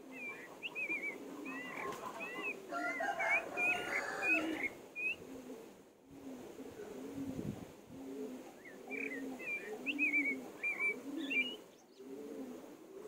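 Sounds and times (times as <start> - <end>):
low cooing: 0.0 - 13.0
bird chirps: 0.1 - 2.6, 8.6 - 12.1.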